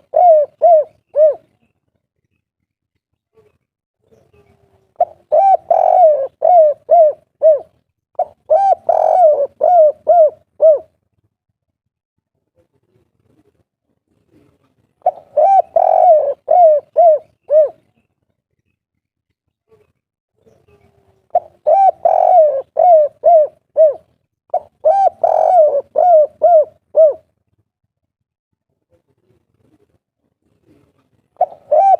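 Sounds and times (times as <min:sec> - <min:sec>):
dove cooing: 0:00.0 - 0:01.6, 0:04.3 - 0:11.0, 0:14.4 - 0:18.0, 0:20.7 - 0:27.3, 0:30.6 - 0:31.9.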